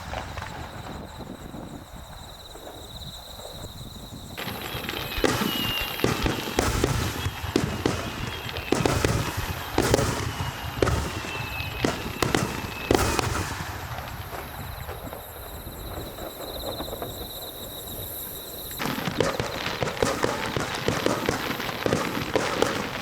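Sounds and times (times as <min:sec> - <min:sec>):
fireworks crackling: 0:00.0 - 0:02.8, 0:04.4 - 0:23.0
fireworks bangs: 0:00.0 - 0:23.0.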